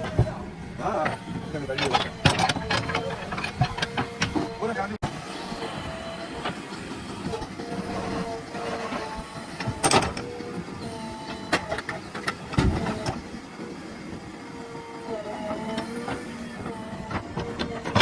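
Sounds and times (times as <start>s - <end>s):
earth-moving machine engine running: 0.0s - 18.0s.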